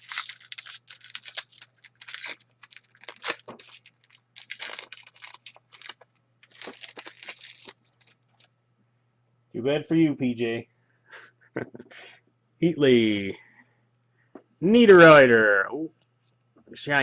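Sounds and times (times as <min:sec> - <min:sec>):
wrapper tearing and crinkling: 0:00.0 - 0:08.5.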